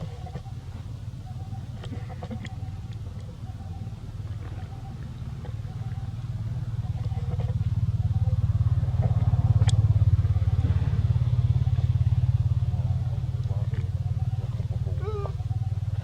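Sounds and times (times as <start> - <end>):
small engine running: 5.4 - 16.0.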